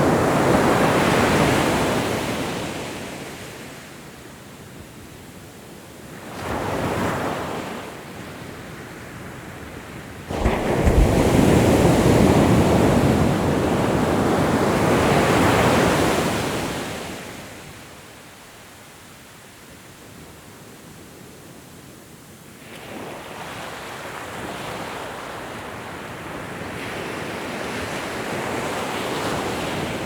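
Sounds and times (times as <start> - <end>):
ocean waves breaking on shore: 0.0 - 3.9, 8.8 - 17.8, 22.8 - 30.0.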